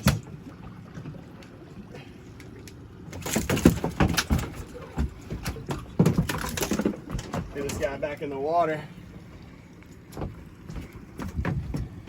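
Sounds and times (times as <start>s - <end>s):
fish slapping on boat deck: 3.1s - 8.0s.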